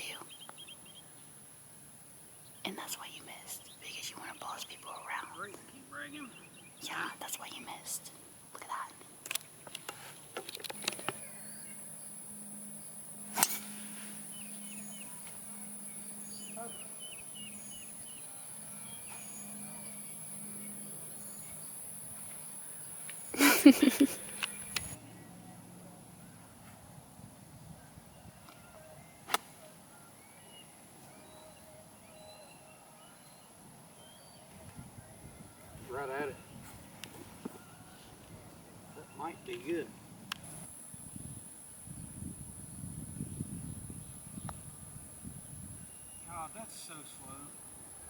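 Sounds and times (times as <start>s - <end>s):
faint low hum: 10.6s - 30.3s
golf club striking ball: 10.7s - 16.5s
high-pitched insect buzz: 10.7s - 25.0s.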